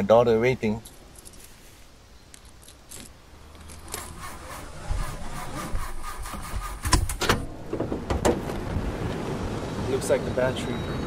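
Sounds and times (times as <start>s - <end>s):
car engine cranking: 3.5s - 8.6s.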